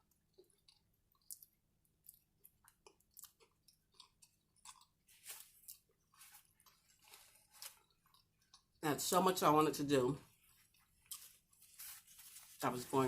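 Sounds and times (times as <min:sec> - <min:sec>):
chewing food: 0:00.0 - 0:08.8.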